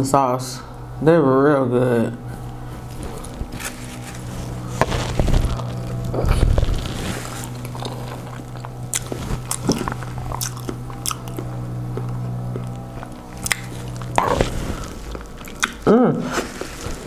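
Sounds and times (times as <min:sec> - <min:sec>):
steady low hum: 0:00.0 - 0:17.0
person chewing food: 0:02.3 - 0:17.0
wet mouth clicks: 0:15.2 - 0:16.4.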